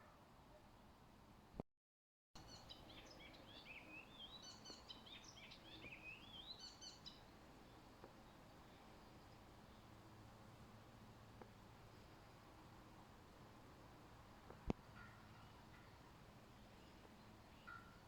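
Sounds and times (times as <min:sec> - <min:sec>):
songbird singing: 0:02.4 - 0:10.7, 0:14.5 - 0:18.0
faint background hiss: 0:02.4 - 0:18.0.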